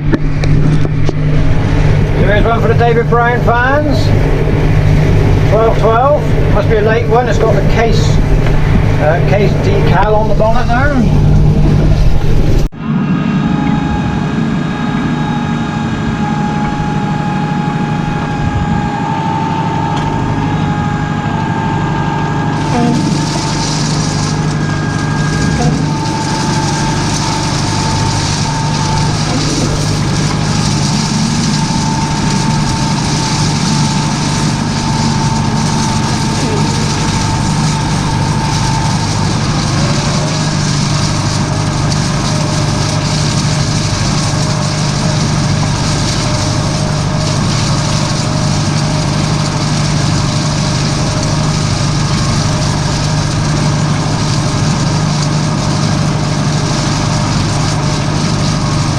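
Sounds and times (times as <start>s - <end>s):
tractor engine running: 0.0s - 58.9s
faint high whine: 1.4s - 41.6s.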